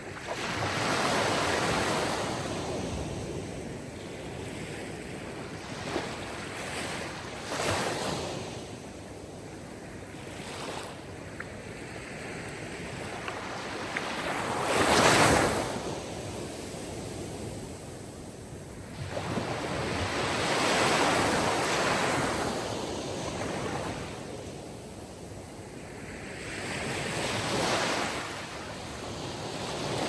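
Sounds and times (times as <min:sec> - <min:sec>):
waves washing in: 0:11.9 - 0:18.0, 0:18.8 - 0:25.0.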